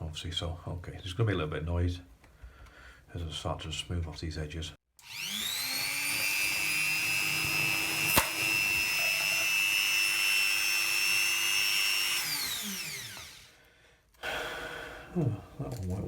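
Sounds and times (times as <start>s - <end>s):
drum sander whining: 5.0s - 13.5s
sharp snap: 8.1s - 8.8s.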